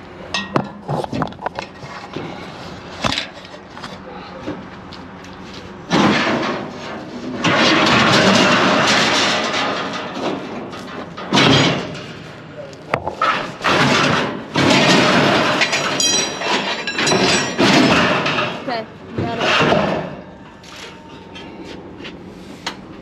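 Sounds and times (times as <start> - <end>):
scrap metal clanking: 5.9 - 12.4, 13.1 - 22.8.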